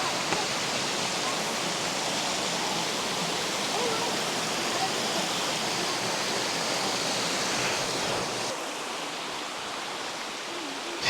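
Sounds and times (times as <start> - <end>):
flowing creek water: 0.0 - 11.0.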